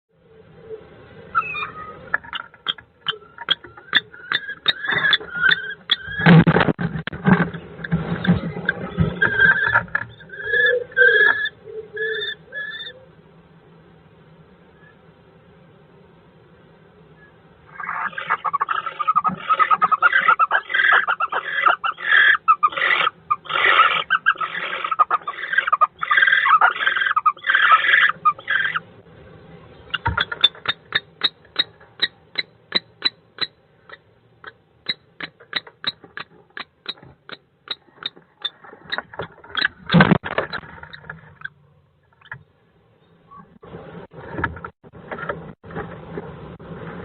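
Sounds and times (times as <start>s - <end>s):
bird giving harsh calls: 1.3s - 6.3s, 9.2s - 13.0s, 17.7s - 28.8s, 29.8s - 39.9s.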